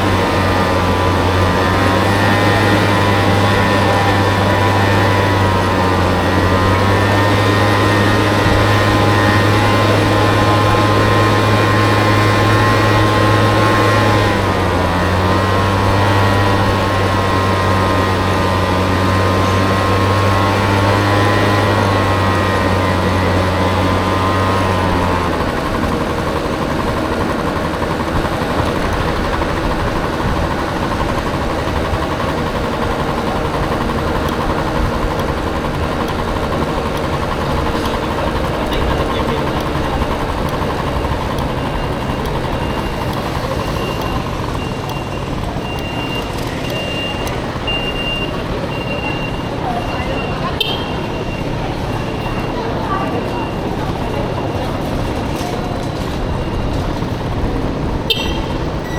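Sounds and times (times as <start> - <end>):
road traffic noise: 0.0 - 58.9
vehicle engine idling: 0.0 - 58.9
faint beeping: 20.7 - 58.9.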